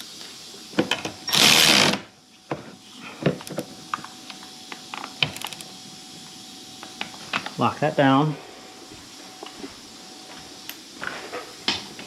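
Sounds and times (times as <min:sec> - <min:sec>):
power tool burst: 0:01.3 - 0:02.1.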